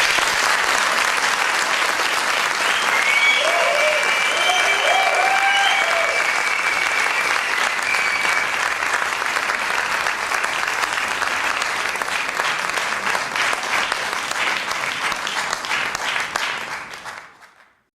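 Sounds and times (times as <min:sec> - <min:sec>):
audience applauding: 0:00.0 - 0:17.8
shrill whistle: 0:02.6 - 0:08.7.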